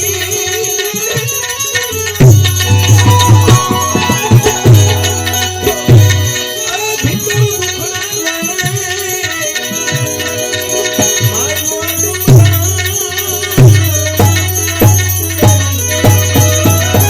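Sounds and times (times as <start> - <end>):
devotional folk music: 0.0 - 17.0.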